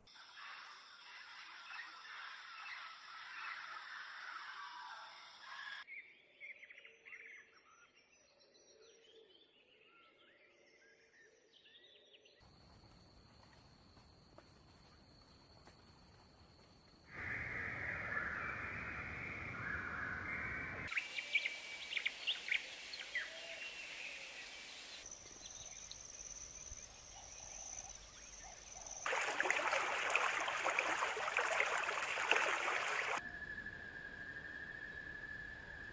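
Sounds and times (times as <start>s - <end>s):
bird calls: 27.1s - 33.2s.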